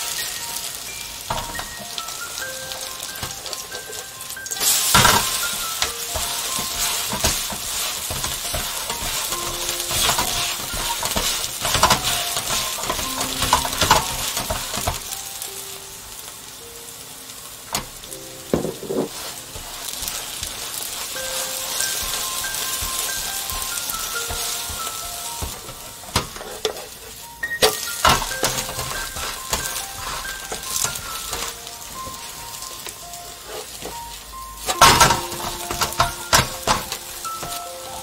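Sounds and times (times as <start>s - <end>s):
pancake sizzling in a pan: 0.0s - 38.0s
wooden spatula scraping pan: 5.0s - 15.0s, 18.5s - 27.2s, 33.3s - 34.0s.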